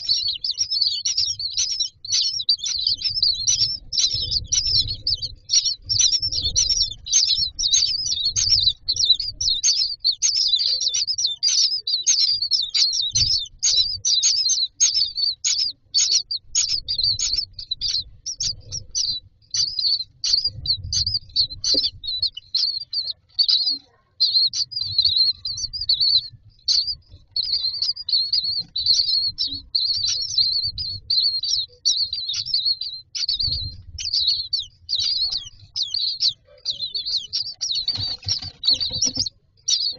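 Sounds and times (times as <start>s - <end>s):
nestlings begging chirps: 0.0s - 39.9s
soft rustling in nest: 33.2s - 39.9s.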